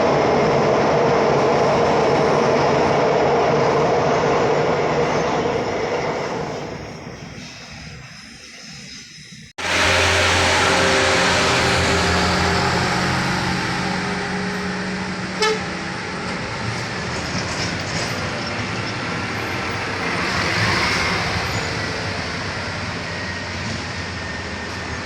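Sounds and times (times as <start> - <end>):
vehicle passing: 9.6 - 15.4
heavy engine running: 9.6 - 25.0.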